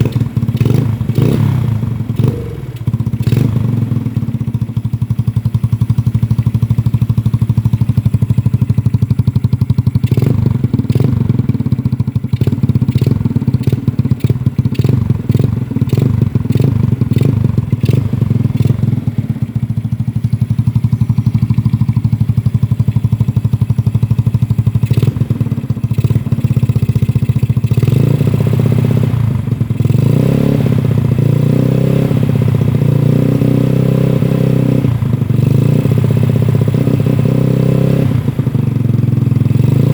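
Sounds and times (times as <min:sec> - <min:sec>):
exhaust pops and clatter: 0:00.0 - 0:03.8, 0:04.4 - 0:19.0
scooter engine idling and revving: 0:00.0 - 0:39.9.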